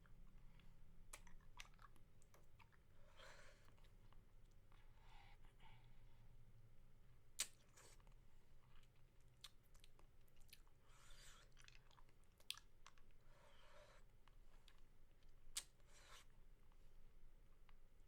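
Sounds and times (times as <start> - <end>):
wet sucking and smacking: 0.6 - 4.8, 7.4 - 8.2, 9.4 - 14.8, 15.5 - 16.3
sharp mouth clicks: 7.4 - 7.6.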